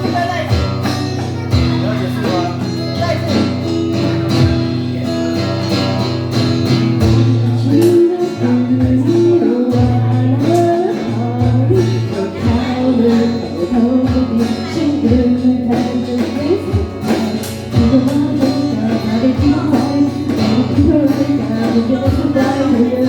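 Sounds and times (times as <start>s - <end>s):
bass notes: 0.0s - 23.0s
drums: 0.0s - 23.0s
strummed guitar: 0.0s - 23.0s
woman singing: 7.0s - 23.0s.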